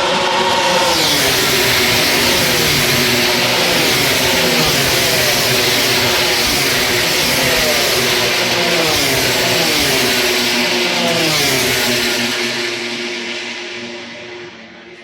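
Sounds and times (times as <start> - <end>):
motorcycles passing at speed: 0.0 - 13.8.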